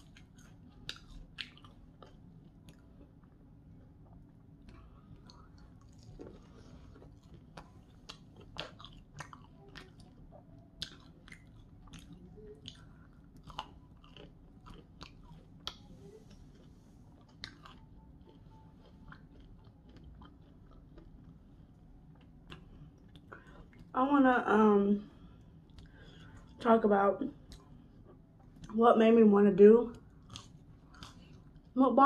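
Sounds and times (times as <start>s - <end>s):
crunchy chewing: 0.0s - 3.4s, 4.0s - 24.0s, 29.9s - 31.8s.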